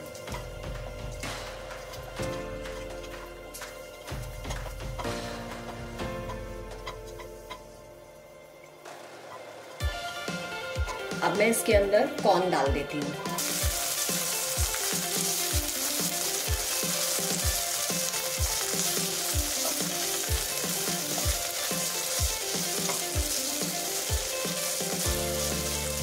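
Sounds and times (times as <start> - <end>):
corn sizzling in hot oil: 13.3 - 26.0.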